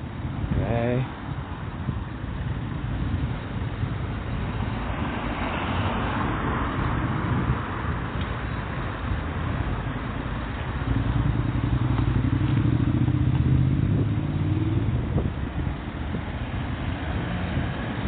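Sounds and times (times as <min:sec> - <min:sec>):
street background noise: 0:00.0 - 0:18.0
vehicle engine passing by: 0:10.8 - 0:18.0.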